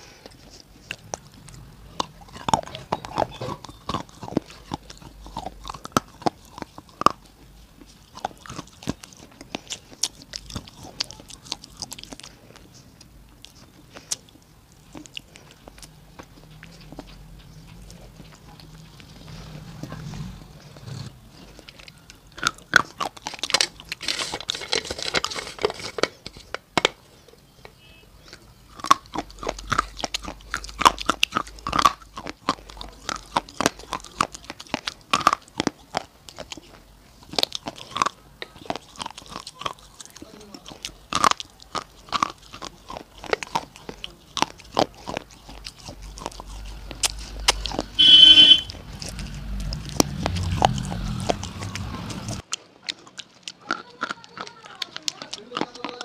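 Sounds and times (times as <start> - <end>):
crunching and chewing: 0.0 - 27.4, 28.1 - 56.0.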